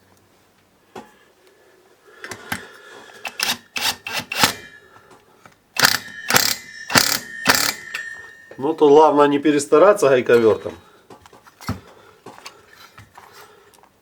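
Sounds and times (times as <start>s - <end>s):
impact wrench hammering: 3.3s - 4.8s, 5.8s - 8.6s.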